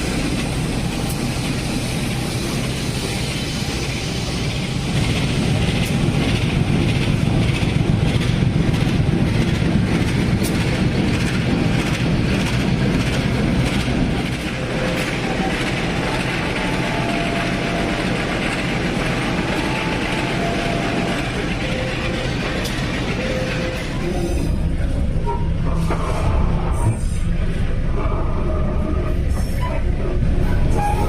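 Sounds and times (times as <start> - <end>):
train rumbling on rails: 0.0 - 31.0
high brake squeals: 30.7 - 31.0.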